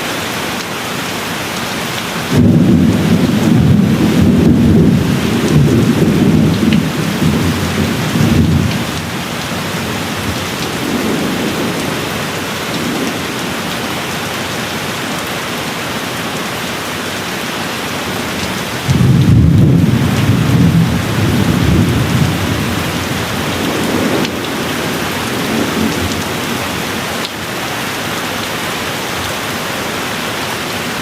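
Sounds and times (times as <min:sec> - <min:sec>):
steady rain hiss: 0:00.0 - 0:31.0
low rolling thunder rumble: 0:02.3 - 0:14.2, 0:18.0 - 0:27.2.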